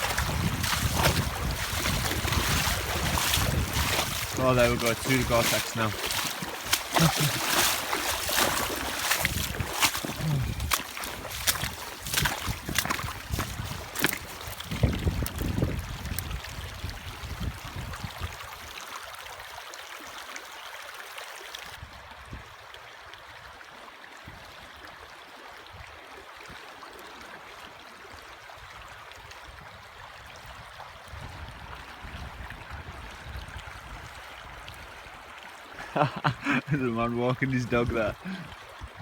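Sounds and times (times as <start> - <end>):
microphone rumbling: 0.0 - 6.0, 8.4 - 16.0
river water rushing: 0.0 - 14.7.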